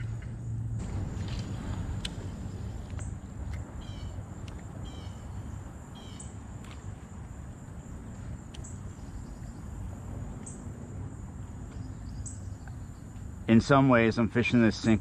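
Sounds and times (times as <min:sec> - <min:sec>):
low rumble: 0:00.0 - 0:13.6
bird call: 0:03.8 - 0:04.2, 0:04.8 - 0:05.4, 0:06.0 - 0:06.4.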